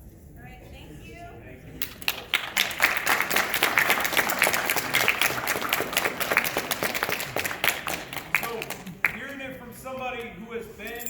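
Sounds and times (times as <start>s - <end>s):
audience applauding: 1.8s - 9.7s.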